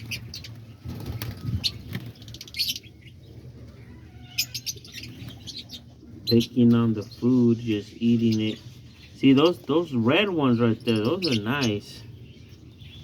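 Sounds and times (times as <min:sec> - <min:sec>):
wing flutters: 0:00.0 - 0:02.8
small birds chirping: 0:00.0 - 0:13.0.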